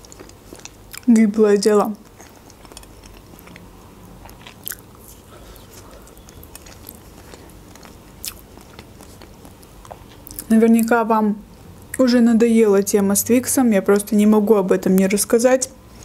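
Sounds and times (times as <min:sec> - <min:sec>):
person chewing food: 0:00.0 - 0:01.3, 0:01.9 - 0:10.5.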